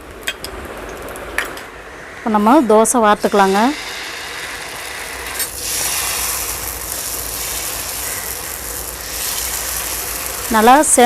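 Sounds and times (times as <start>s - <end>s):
batter sizzling on griddle: 3.2s - 11.0s.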